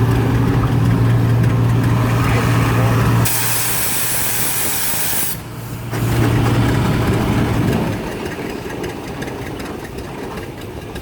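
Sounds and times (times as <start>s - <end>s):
engine humming and rattling: 0.0s - 11.0s
steam hissing: 3.2s - 5.5s.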